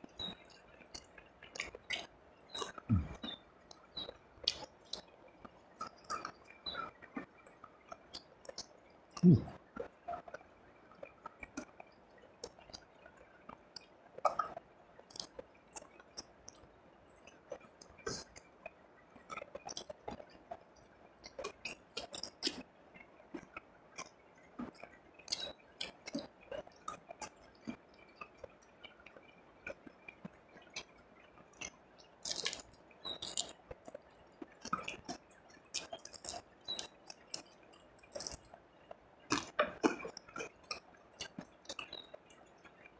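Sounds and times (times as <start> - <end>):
close-up chewing and crunching: 0.2 - 20.6, 21.2 - 22.7, 23.3 - 38.6, 39.2 - 42.9.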